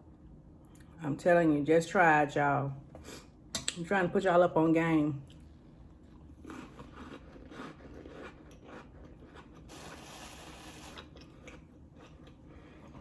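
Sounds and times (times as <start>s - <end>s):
person chewing crunchy crackers: 5.3s - 13.0s.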